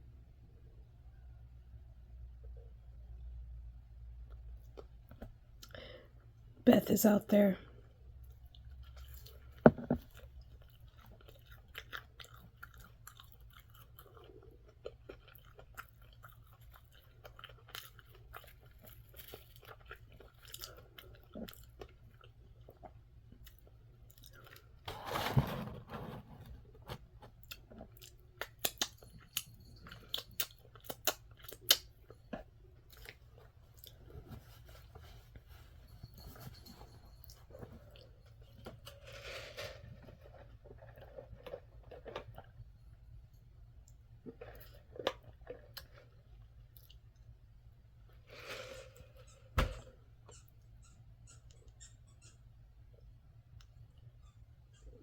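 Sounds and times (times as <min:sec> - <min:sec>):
chewing crunchy fried food: 0:08.0 - 0:24.9, 0:26.9 - 0:35.5, 0:40.0 - 0:42.9, 0:43.8 - 0:47.5.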